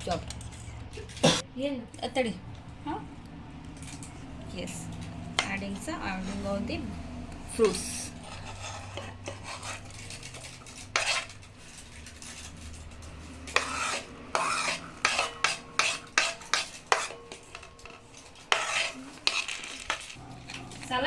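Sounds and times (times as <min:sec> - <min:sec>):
spoon scraping bowl: 0:05.0 - 0:21.0
spoon stirring in glass bowl: 0:05.4 - 0:21.0.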